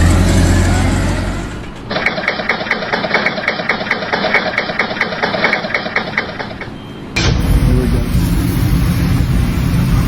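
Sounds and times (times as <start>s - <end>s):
engine-driven machine knocking: 1.7s - 7.7s.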